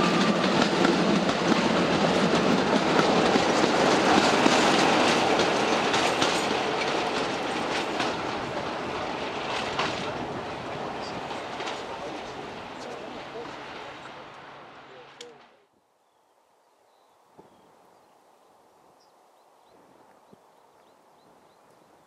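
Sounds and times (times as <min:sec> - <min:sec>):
train wheels clattering on rail joints: 0:00.0 - 0:13.9
train rumbling: 0:00.0 - 0:15.7.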